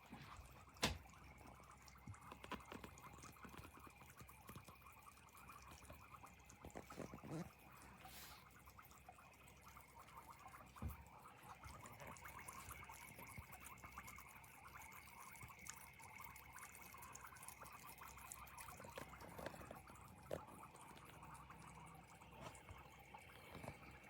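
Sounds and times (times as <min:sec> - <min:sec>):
water trickling and dripping: 0:00.0 - 0:24.0.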